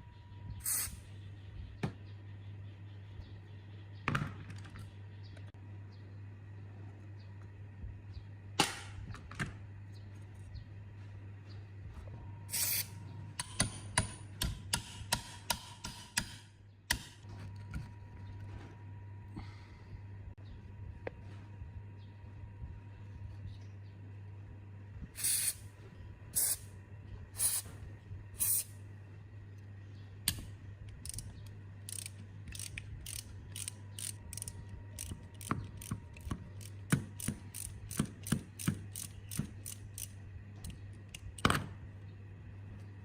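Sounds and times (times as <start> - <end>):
steady low hum: 0.0 - 43.0
ratchet tool clicking: 31.0 - 41.2.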